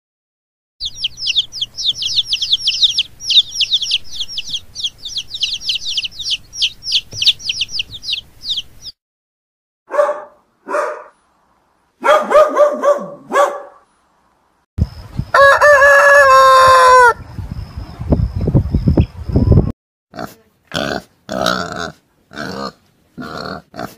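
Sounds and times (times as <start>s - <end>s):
chicks peeping: 0.8s - 9.0s, 14.8s - 19.7s
dog barking: 9.9s - 11.2s, 12.0s - 13.9s
rooster crowing: 15.3s - 17.2s.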